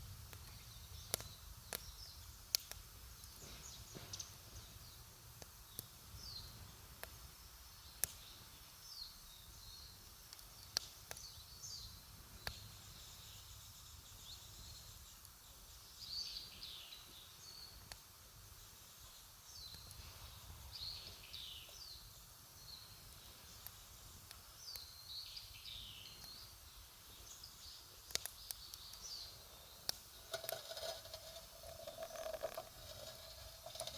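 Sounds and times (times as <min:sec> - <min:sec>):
campfire crackling and popping: 0:00.0 - 0:09.3, 0:09.9 - 0:12.7, 0:17.7 - 0:18.6, 0:21.6 - 0:33.9
birds chirping: 0:00.3 - 0:17.8, 0:18.7 - 0:33.9.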